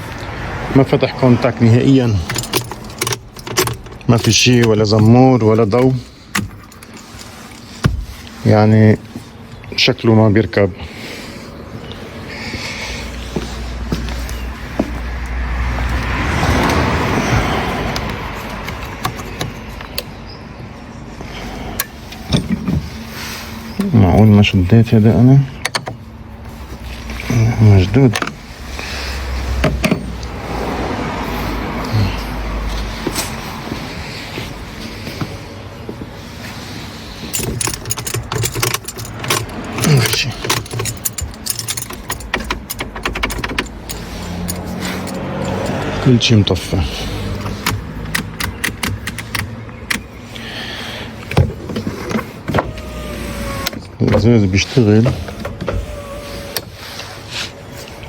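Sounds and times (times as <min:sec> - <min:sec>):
vehicle passing: 0:00.0 - 0:06.3, 0:10.8 - 0:21.8, 0:26.2 - 0:37.7, 0:38.4 - 0:51.3
keys jangling: 0:01.8 - 0:08.1, 0:37.2 - 0:46.1, 0:46.9 - 0:50.1
handling clicks: 0:47.3 - 0:50.2.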